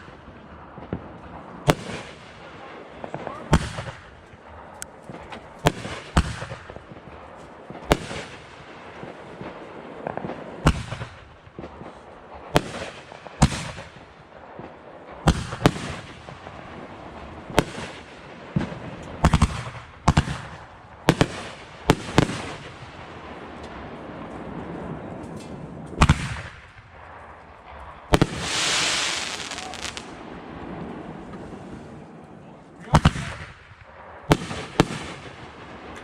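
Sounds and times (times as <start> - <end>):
fireworks bangs: 14.6 - 32.1
fireworks crackling: 25.3 - 32.0.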